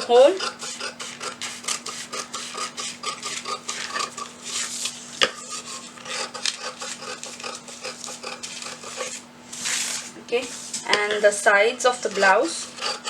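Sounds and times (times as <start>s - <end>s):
scissors snipping paper: 6.0s - 9.2s.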